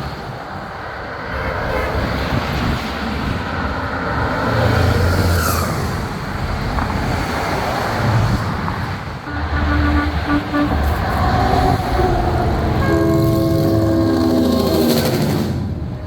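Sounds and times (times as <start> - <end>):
trucks driving past: 0.0 - 16.0
air horn toots: 9.3 - 15.6
higher horn tone: 9.3 - 15.8.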